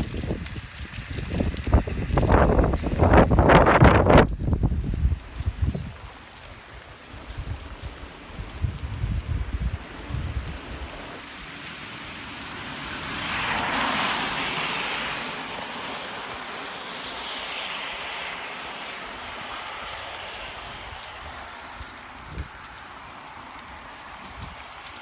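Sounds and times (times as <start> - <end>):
wind buffeting microphone: 0.0 - 11.4, 18.0 - 25.0
rain hissing: 0.0 - 25.0.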